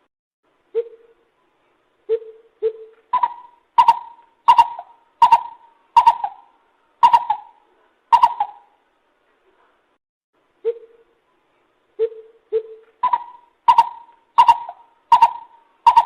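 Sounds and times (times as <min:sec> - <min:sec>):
bird calling hollow notes: 0:02.1 - 0:08.8, 0:12.0 - 0:16.0.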